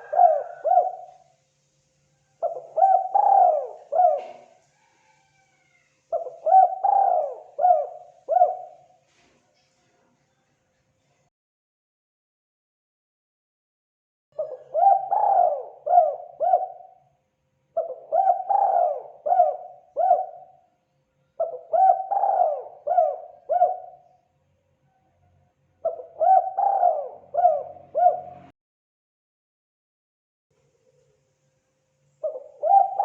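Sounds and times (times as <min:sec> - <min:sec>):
dove cooing: 0:00.0 - 0:01.3, 0:02.3 - 0:09.0, 0:14.4 - 0:17.0, 0:17.8 - 0:20.6, 0:21.4 - 0:24.2, 0:25.8 - 0:28.5, 0:32.2 - 0:33.0.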